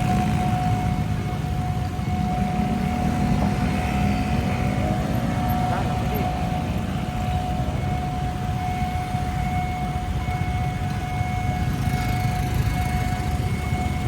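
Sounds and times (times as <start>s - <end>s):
high electronic warning tone: 0.0s - 14.0s
motorcycle and traffic engines: 0.0s - 14.0s.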